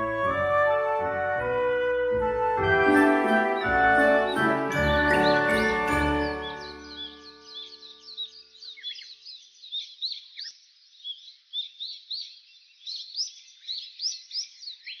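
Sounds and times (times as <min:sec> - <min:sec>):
tinkling music: 0:02.4 - 0:07.8
songbirds chirping: 0:02.8 - 0:15.0.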